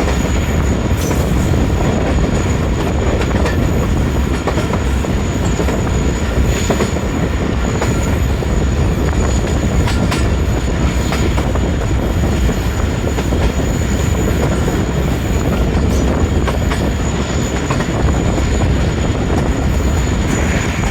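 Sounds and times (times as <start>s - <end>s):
train wheels rumbling on rails: 0.0s - 20.9s
thin high whine: 20.0s - 20.9s.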